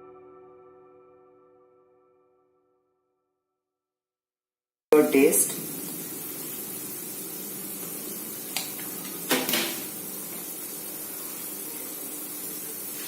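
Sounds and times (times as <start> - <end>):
food sizzling in a pan: 5.0 - 13.0.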